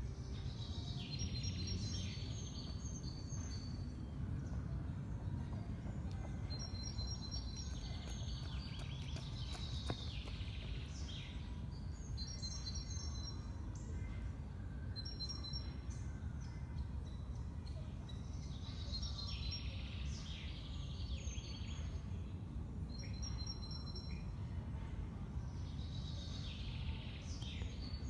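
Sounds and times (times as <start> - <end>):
small birds chirping: 0.2 - 14.2.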